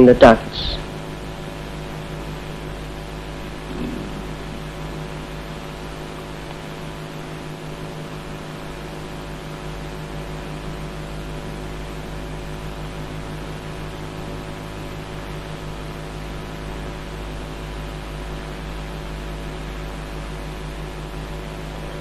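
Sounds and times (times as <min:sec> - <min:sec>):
electrical hum: 0:00.0 - 0:22.0
even hiss: 0:03.4 - 0:06.4.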